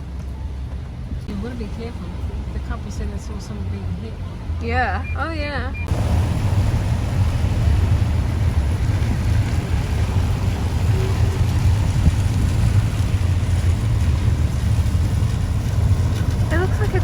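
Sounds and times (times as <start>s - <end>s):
car engine and road rumble: 0.0s - 17.0s
tyres hissing on wet road: 5.9s - 17.0s.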